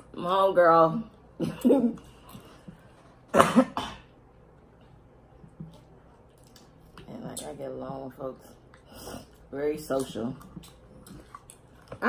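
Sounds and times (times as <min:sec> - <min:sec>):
person coughing: 0:03.3 - 0:04.1.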